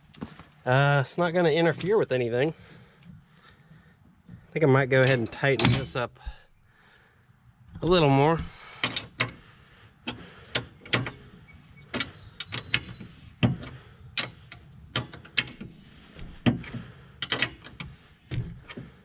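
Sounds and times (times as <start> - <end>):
hands working metal parts: 4.9 - 6.3, 7.8 - 9.4, 11.8 - 19.0.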